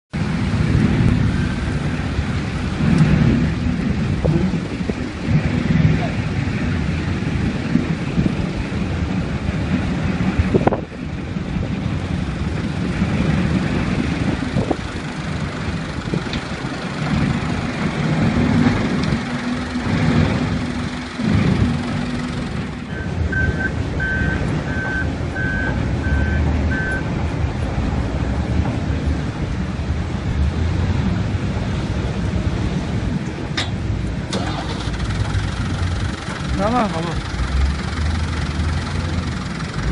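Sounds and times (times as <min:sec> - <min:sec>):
debarking machine rumbling: 0:00.2 - 0:39.9
reversing alarm beeps: 0:22.9 - 0:27.0.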